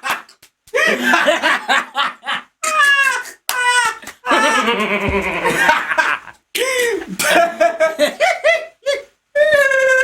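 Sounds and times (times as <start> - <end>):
person laughing: 4.2 - 10.0.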